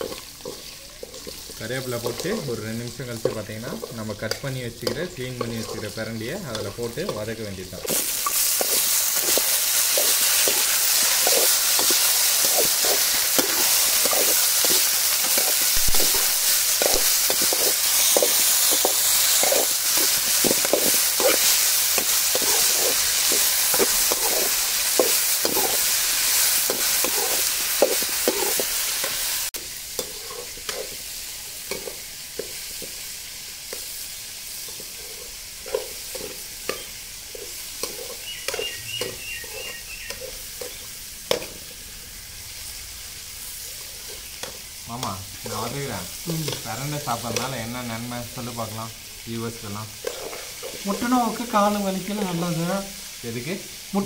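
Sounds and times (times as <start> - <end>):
food sizzling in oil: 0.0 - 54.0
steel ladle scraping a pan: 3.8 - 7.2, 7.9 - 31.1, 34.6 - 41.5, 50.0 - 51.0.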